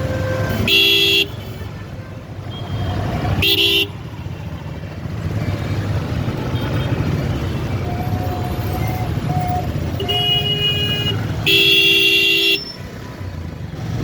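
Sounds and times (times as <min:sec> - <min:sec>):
vehicle horn blasts: 0:00.0 - 0:01.5, 0:03.4 - 0:04.0.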